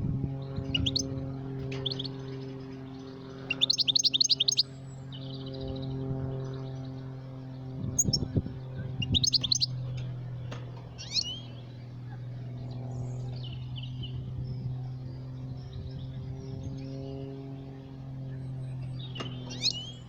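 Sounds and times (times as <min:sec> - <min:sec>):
low electrical hum: 0:00.0 - 0:20.0
bird chirping and twittering: 0:00.3 - 0:20.0.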